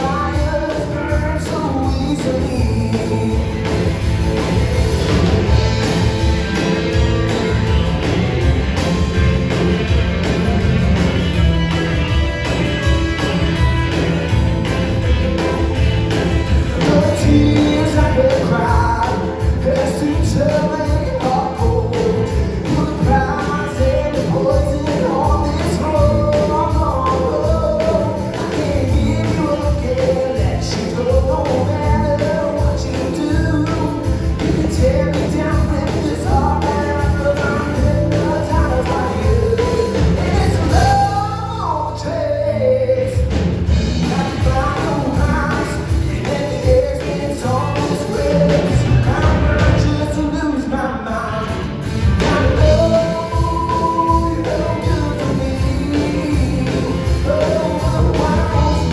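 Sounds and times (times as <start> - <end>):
live band music: 0.0 - 58.9
lead melody: 1.9 - 20.2.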